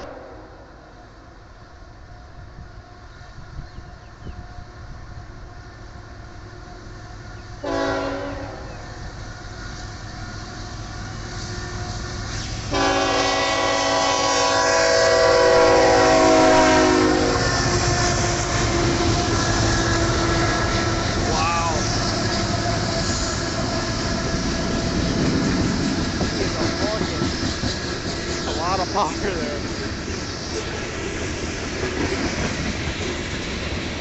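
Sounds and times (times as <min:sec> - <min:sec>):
locomotive air horn chord: 0:00.0 - 0:00.8, 0:07.6 - 0:08.8, 0:12.7 - 0:25.3
diesel locomotive engine rumble: 0:00.0 - 0:34.0.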